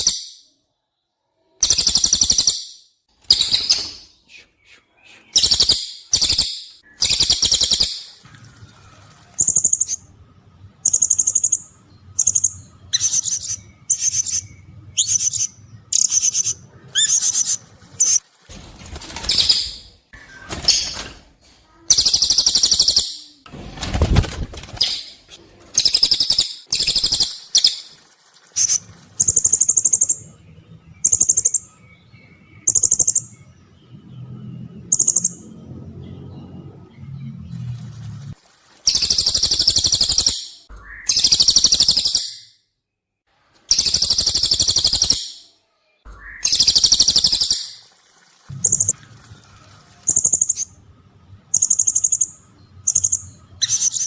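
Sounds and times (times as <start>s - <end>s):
shrill bird chirps and whistles: 1.6s - 8.2s, 10.8s - 18.2s, 21.9s - 23.4s, 25.8s - 27.9s, 38.9s - 42.6s, 43.7s - 45.5s, 46.1s - 47.8s, 51.5s - 54.0s.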